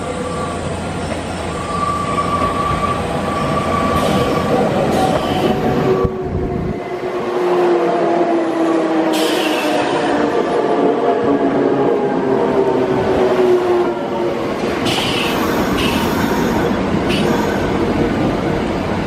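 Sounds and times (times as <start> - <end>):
electric train passing: 0.0 - 19.0
high-pitched wheel squeal: 1.5 - 6.1.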